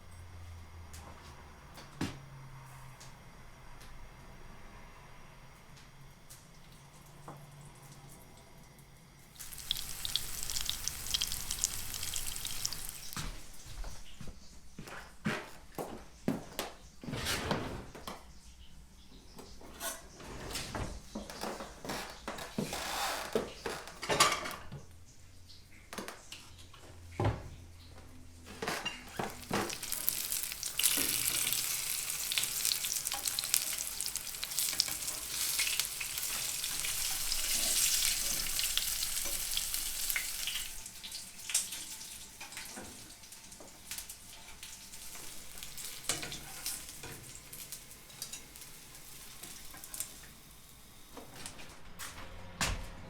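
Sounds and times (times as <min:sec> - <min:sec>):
food sizzling in a pan: 0:09.2 - 0:13.6, 0:29.1 - 0:51.2.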